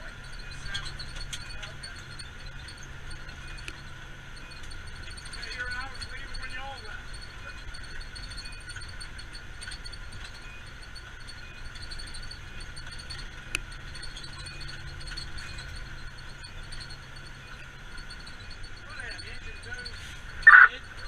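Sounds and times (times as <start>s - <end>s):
engine and road drone: 0.0s - 21.0s
faint high whine: 0.0s - 21.0s.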